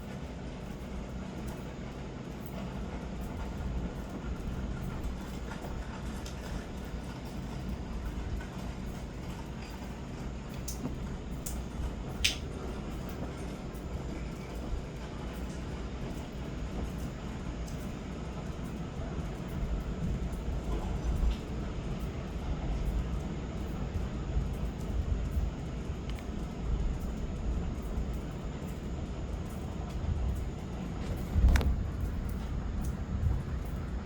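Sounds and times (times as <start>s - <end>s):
thunder rumbling: 19.0s - 34.0s.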